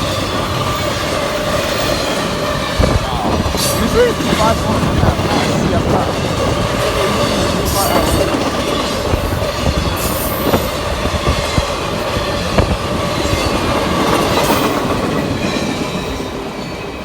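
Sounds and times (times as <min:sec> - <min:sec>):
freight train cars rolling past: 0:00.0 - 0:17.0.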